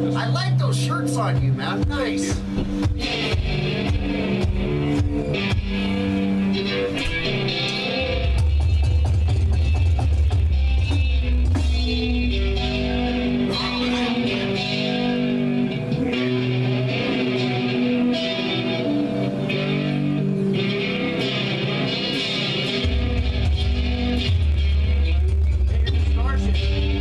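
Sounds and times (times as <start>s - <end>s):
electric guitar through an amp: 0.0s - 27.0s
low drone: 12.0s - 27.0s.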